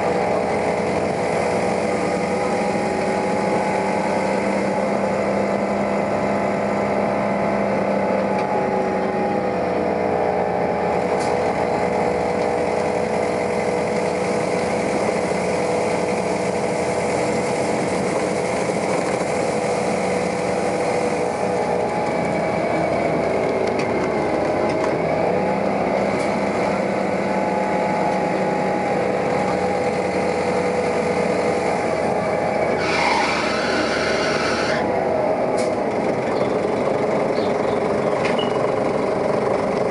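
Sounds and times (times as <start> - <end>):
bus engine drone: 0.0 - 39.9.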